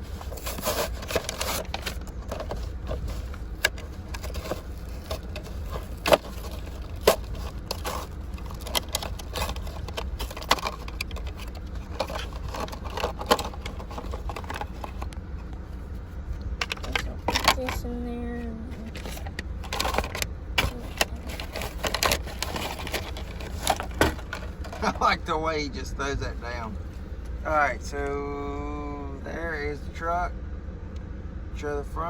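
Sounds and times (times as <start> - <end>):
blister package crinkling: 0.0 - 15.2, 18.8 - 25.0.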